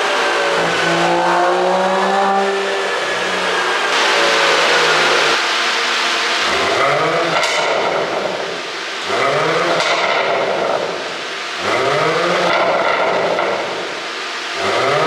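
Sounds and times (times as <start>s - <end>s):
car engine revving: 0.0s - 15.0s
exhaust pops and crackles: 6.5s - 14.0s.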